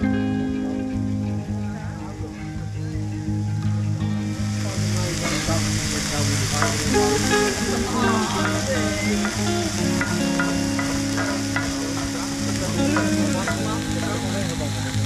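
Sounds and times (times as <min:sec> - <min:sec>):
food sizzling in a skillet: 0:03.1 - 0:15.0.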